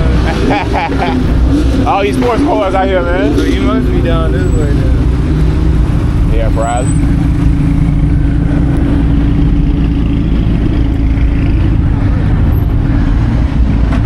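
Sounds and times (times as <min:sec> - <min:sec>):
car engine running steadily: 0:00.0 - 0:14.0.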